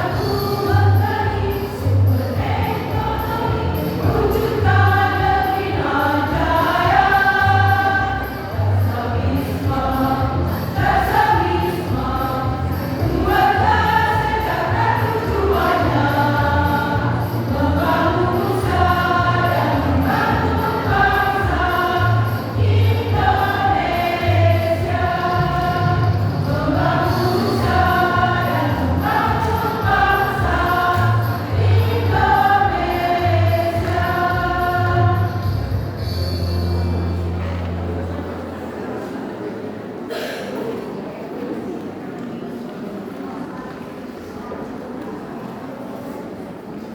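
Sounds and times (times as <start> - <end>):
women's choir singing: 0.0 - 36.2
keyboard accompaniment: 0.0 - 38.5.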